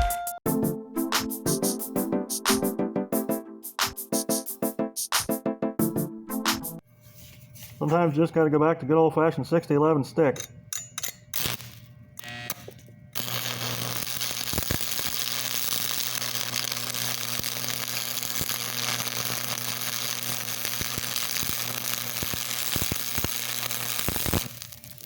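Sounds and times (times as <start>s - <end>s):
welding arc crackling hiss: 11.4s - 25.0s.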